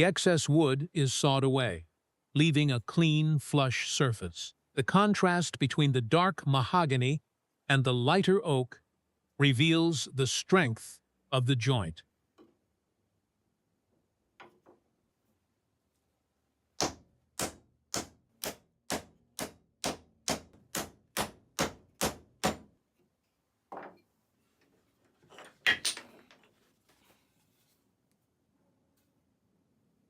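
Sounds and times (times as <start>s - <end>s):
hammer strikes: 16.8s - 22.7s.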